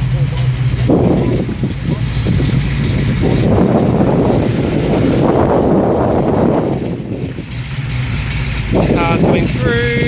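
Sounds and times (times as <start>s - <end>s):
car engines running: 0.0s - 10.0s
wind buffeting microphone: 0.6s - 10.0s.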